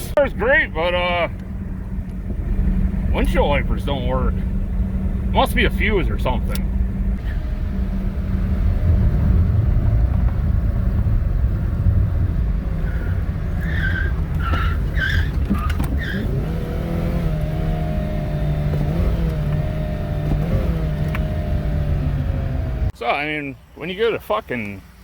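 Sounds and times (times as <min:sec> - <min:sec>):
car engine rumbling: 0:00.0 - 0:25.0
short high squeaks: 0:12.9 - 0:16.4.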